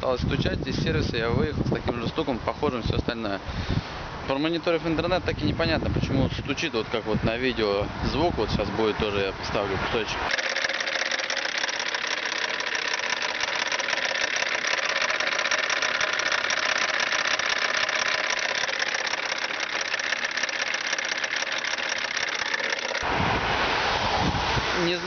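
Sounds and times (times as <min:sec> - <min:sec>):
rapid engine knocking: 0:10.3 - 0:23.0
diesel engine running: 0:10.3 - 0:23.1.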